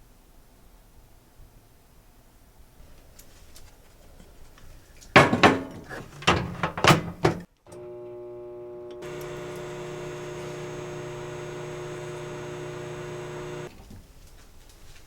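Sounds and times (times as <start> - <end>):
microwave oven humming: 5.2 - 13.7.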